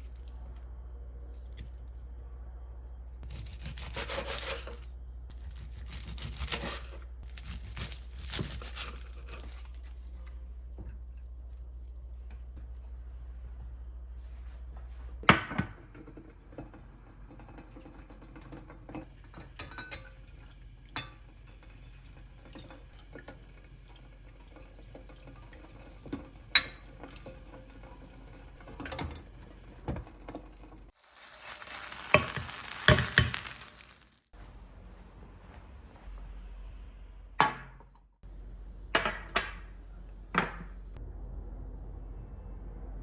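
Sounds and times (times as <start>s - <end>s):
frying sizzle: 20.1s - 34.3s.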